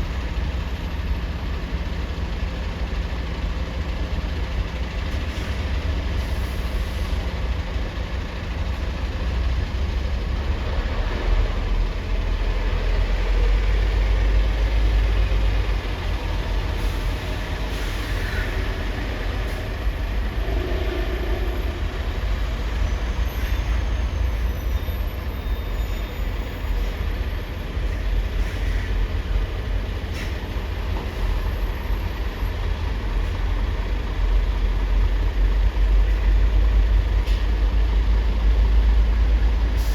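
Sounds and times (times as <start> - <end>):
heavy engines rumbling: 0.0 - 39.9
faint high squeals: 17.7 - 27.2.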